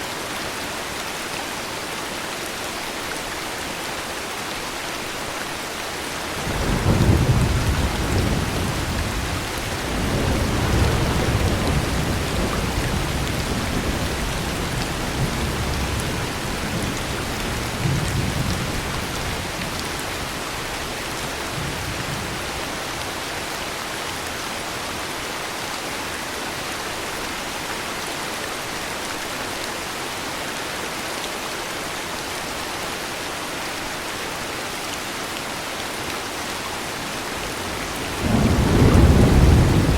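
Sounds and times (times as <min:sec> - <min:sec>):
heavy rain: 0:00.0 - 0:39.9
thunder rumbling: 0:06.4 - 0:20.2, 0:37.4 - 0:39.9.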